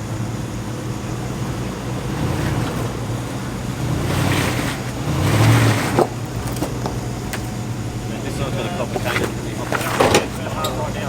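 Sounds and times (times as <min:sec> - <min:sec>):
vehicle engine running low: 0:00.0 - 0:11.0.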